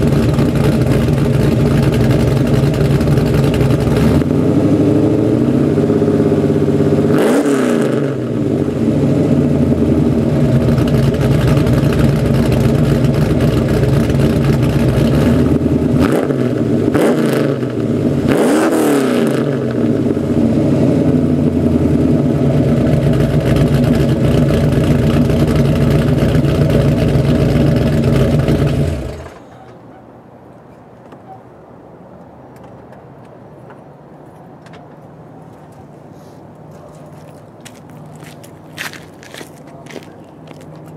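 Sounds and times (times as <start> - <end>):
car engine idling and revving: 0.0 - 29.6.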